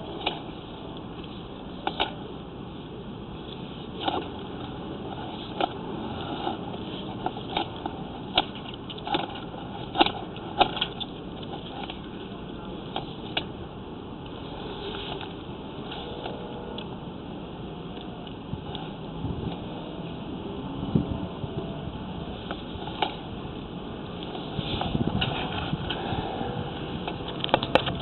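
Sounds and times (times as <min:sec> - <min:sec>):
steady noise: 0:00.0 - 0:28.0
sharp clicks and knocks: 0:27.0 - 0:28.0.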